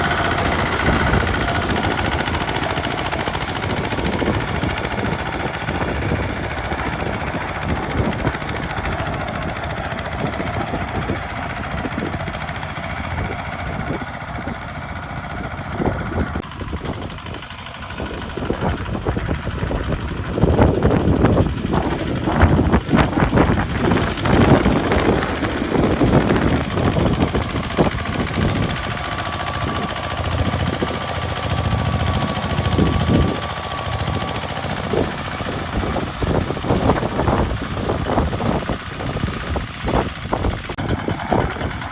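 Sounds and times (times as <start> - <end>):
diesel tractor engine knocking: 0.0 - 41.9.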